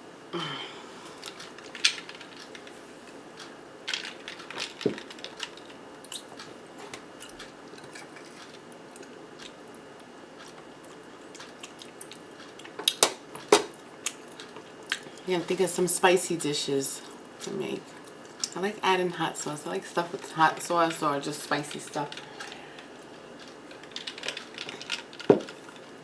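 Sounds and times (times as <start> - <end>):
chewing food: 3.4 - 15.3, 22.1 - 26.0.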